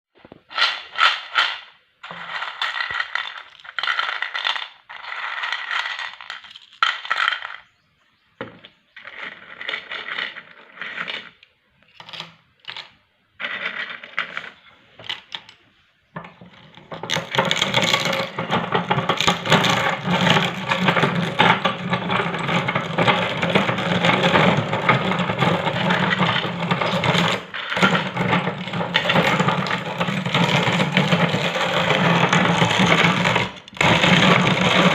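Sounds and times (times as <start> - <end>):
snack pellets clattering: 0.6 - 7.6
meat grinder crunching pellets: 17.0 - 34.9.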